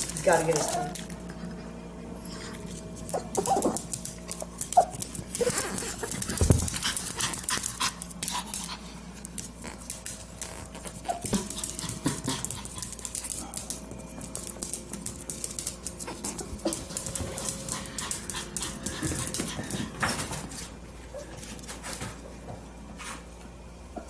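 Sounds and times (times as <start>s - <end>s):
dog whimpering and crying: 3.1s - 3.9s.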